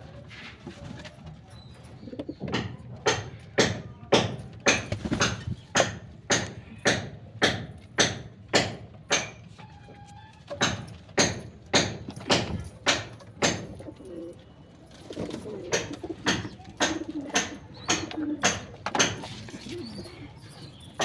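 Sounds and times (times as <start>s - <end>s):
sharp knocks: 15.8s - 19.4s.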